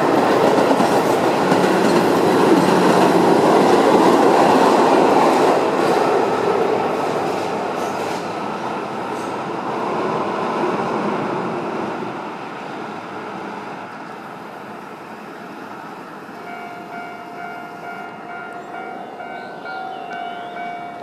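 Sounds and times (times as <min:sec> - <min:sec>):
electric train passing: 0:00.0 - 0:21.0
crossing warning bell ringing: 0:16.4 - 0:21.0.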